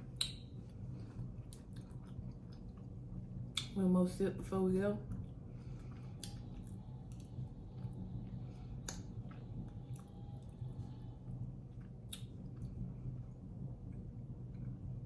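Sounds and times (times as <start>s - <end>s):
low steady hum: 0.0s - 15.0s
soft mouth clicks: 0.1s - 0.5s, 6.2s - 7.3s, 8.8s - 10.1s, 12.1s - 12.4s.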